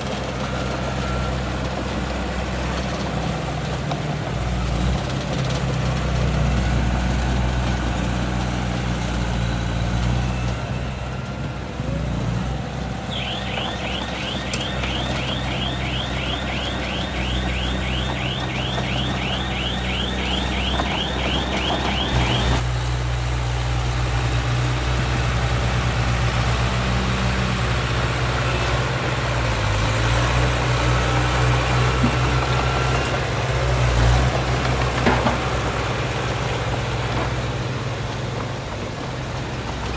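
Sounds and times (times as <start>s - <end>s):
heavy diesel engine running: 12.5s - 22.8s.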